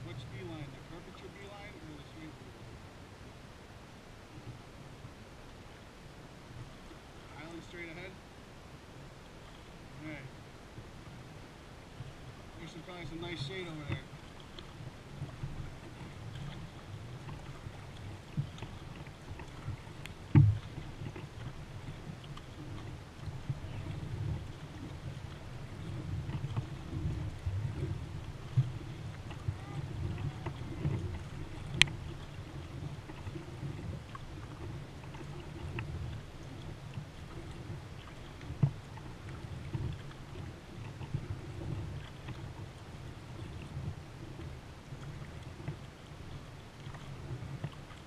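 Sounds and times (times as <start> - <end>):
paddle strokes: 0.0 - 48.0
wind rumble on microphone: 0.0 - 48.0
water sloshing: 9.1 - 48.0
paddle knocking on kayak hull: 13.5 - 45.9
knock on kayak: 20.3 - 21.2.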